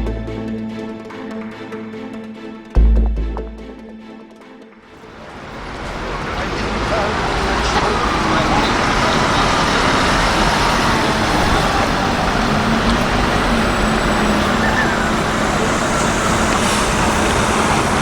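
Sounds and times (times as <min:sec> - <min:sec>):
dense traffic rumble: 0:04.9 - 0:18.0
vehicle engine hum: 0:05.0 - 0:18.0.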